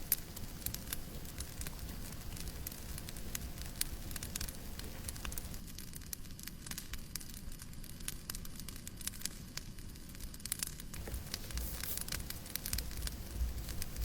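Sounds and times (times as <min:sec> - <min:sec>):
steady hiss: 0:00.0 - 0:06.2, 0:10.9 - 0:14.0
fire popping and snapping: 0:00.0 - 0:14.0
low rumble: 0:11.0 - 0:14.0.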